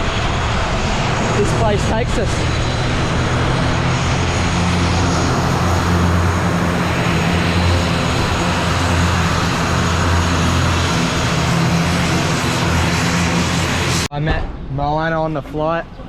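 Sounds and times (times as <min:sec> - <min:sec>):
airliner engines droning in cabin: 0:00.0 - 0:14.1.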